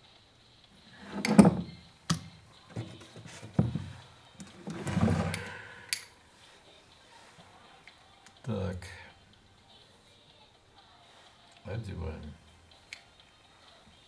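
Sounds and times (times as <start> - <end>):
clattering of parts being handled: 0.9 - 5.8.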